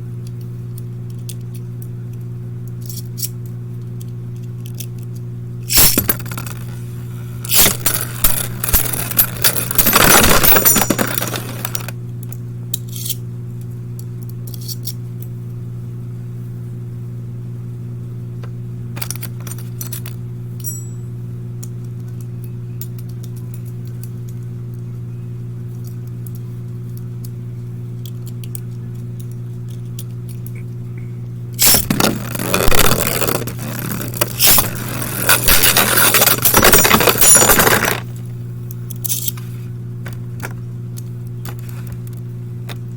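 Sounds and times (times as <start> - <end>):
low hum: 0.0 - 42.9
spinning tops clashing and scraping: 5.7 - 11.9, 12.8 - 13.2, 31.6 - 38.1, 38.9 - 39.5
rattling clatter: 7.5 - 11.9, 31.6 - 38.1.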